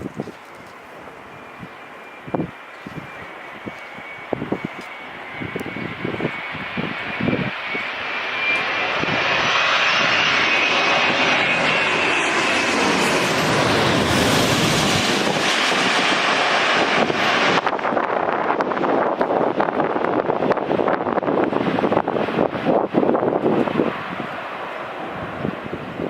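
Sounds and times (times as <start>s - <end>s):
airliner passing overhead: 0.0s - 26.0s
faint engine whine: 0.1s - 18.6s.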